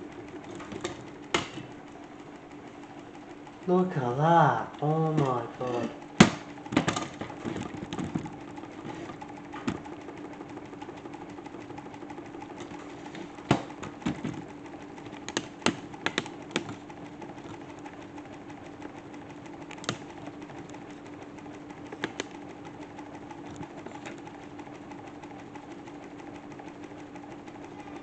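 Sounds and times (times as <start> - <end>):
toy washing machine humming: 0.0 - 28.0
sharp knocks: 6.2 - 7.3.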